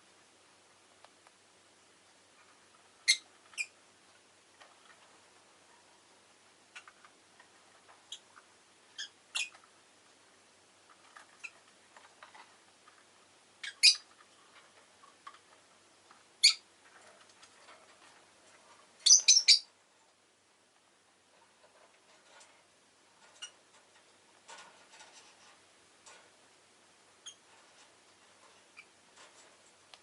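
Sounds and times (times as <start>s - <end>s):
lovebirds chirping: 3.0s - 3.8s, 8.9s - 9.6s, 13.6s - 14.1s, 16.4s - 16.7s, 19.0s - 19.8s.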